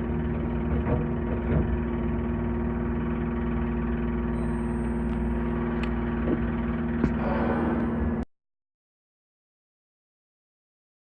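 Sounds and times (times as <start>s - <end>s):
electric train hum: 0.0s - 8.3s.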